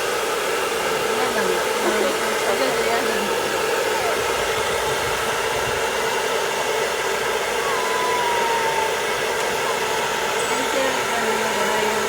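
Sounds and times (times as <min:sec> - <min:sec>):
hair dryer blowing: 0:00.0 - 0:12.0
thin gliding tone: 0:07.6 - 0:12.0.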